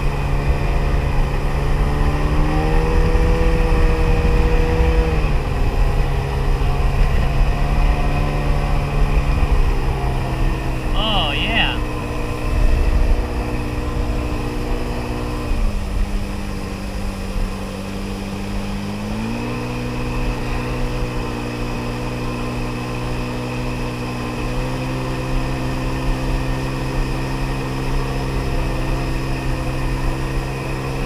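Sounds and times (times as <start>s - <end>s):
jet ski engine running: 0.0s - 31.0s.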